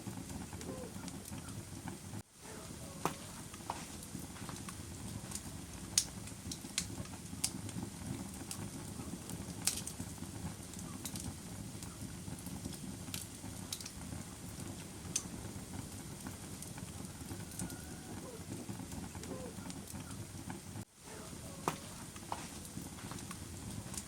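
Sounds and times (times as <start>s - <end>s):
fire popping and crackling: 0.0s - 24.0s
fire rumbling: 0.0s - 24.0s.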